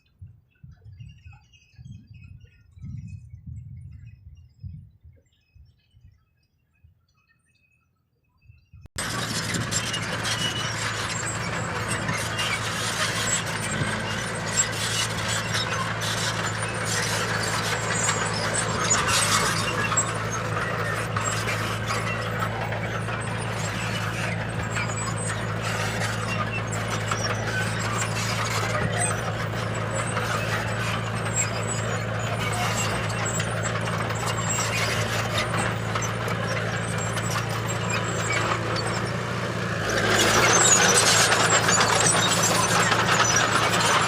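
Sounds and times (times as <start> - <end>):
diesel engine drone: 9.0 - 44.0
machinery clanking and grinding: 9.0 - 44.0.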